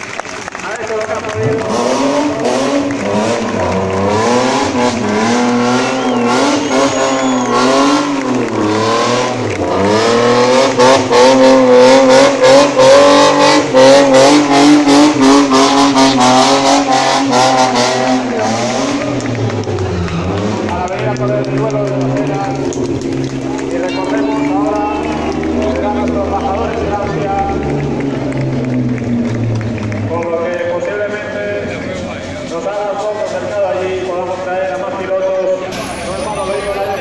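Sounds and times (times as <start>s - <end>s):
car engine revving hard: 1.1s - 30.5s
tyre squeal: 5.8s - 7.9s.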